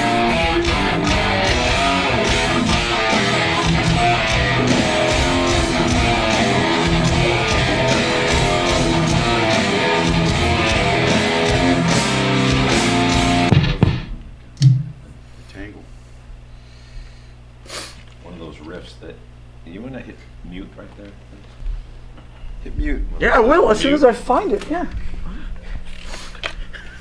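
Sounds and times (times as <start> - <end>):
electric guitars and bass riff: 0.0 - 15.0
drums: 0.0 - 15.2.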